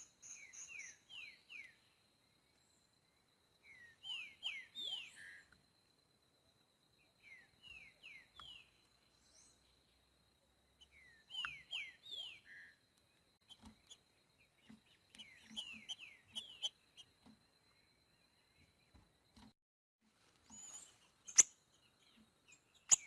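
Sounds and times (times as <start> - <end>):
bird whistling song: 0.0 - 1.8, 3.6 - 5.6, 7.2 - 9.6, 10.8 - 12.8, 15.2 - 17.1, 20.5 - 23.0.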